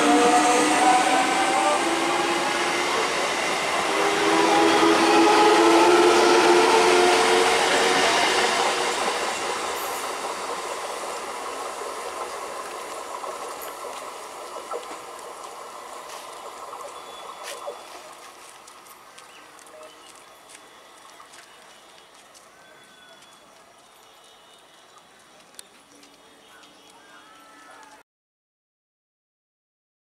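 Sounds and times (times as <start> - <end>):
train motor whine: 0.0 - 18.3
train wheels on rails: 0.0 - 28.0.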